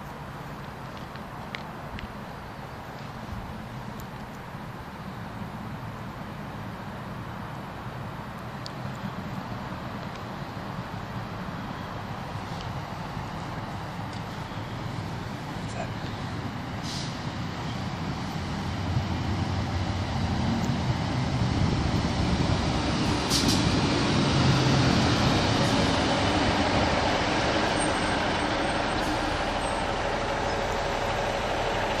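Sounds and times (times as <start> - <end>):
diesel train engine and wheels: 0.0 - 32.0
short sharp hiss: 16.8 - 17.2, 23.3 - 23.7.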